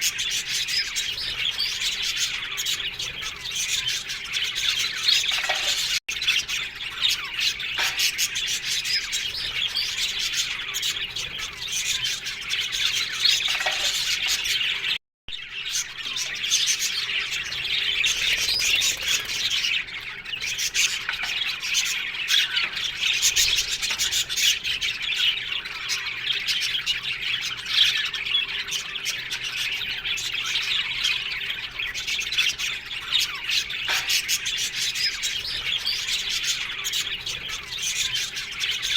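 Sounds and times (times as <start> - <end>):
budgerigars chattering and squawking: 0.0 - 38.9.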